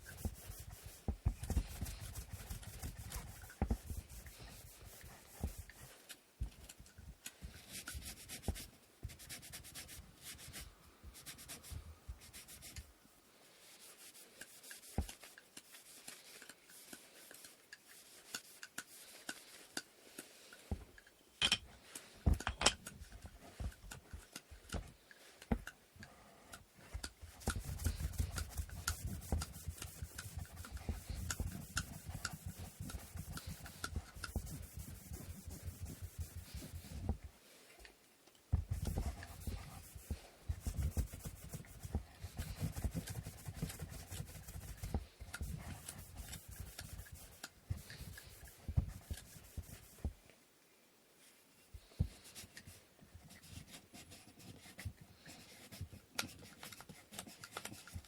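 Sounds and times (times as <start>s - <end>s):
sandpaper rubbing on wood: 27.4s - 37.1s, 38.8s - 50.1s.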